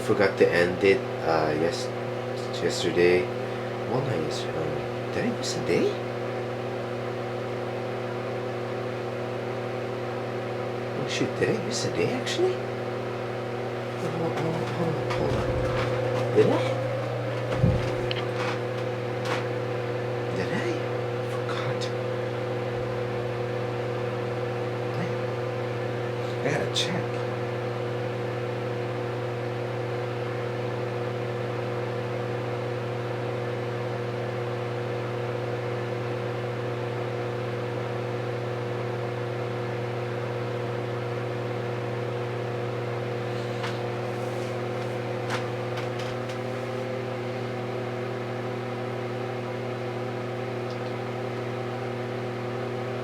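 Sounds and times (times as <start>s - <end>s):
steady mechanical hum: 0.0s - 53.0s.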